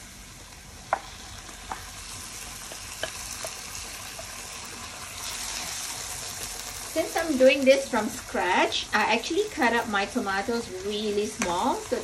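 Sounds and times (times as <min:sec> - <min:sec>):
onions sizzling in a frying pan: 0:00.0 - 0:12.0.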